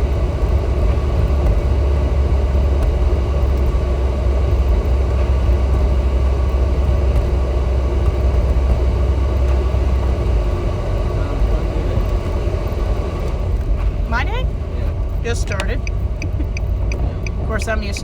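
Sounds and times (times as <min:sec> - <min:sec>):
road rumble and tyre noise: 0:00.0 - 0:18.0.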